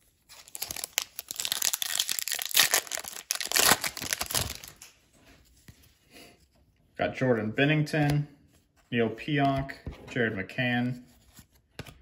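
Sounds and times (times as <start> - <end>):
foil wrapper tearing and crinkling: 0.3 - 4.9.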